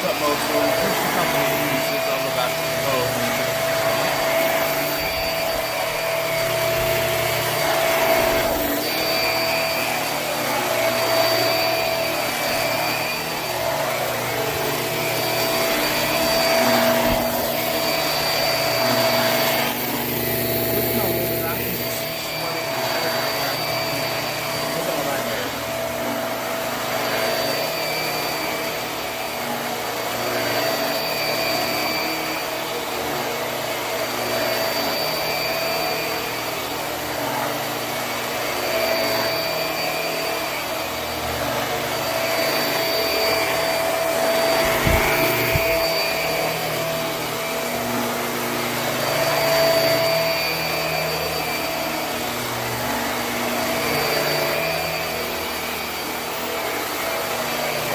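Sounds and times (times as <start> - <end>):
upright vacuum on carpet: 0.0 - 57.9.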